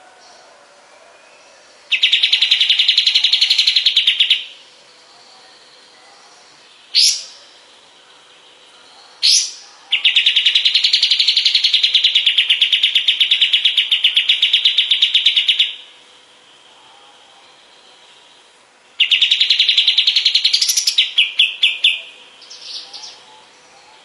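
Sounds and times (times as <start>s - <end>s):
bird fast trill: 1.9s - 4.6s, 6.8s - 7.4s, 8.4s - 16.0s, 19.0s - 23.6s.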